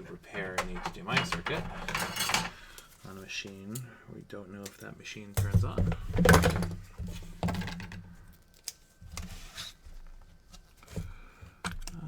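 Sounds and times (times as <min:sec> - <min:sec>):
clicks taps and rustling: 0:00.0 - 0:03.6, 0:10.6 - 0:12.0
faint steady hum: 0:00.0 - 0:12.0.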